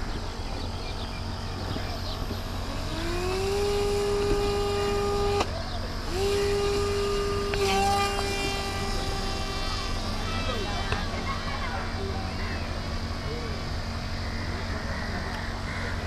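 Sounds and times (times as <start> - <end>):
motor cutoff click: 0.0 - 11.5
drone propeller motor whine: 0.0 - 16.0.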